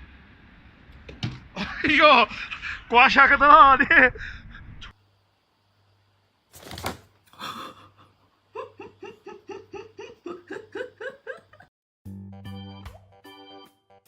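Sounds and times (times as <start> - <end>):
high-pitched laughter: 8.5 - 11.7.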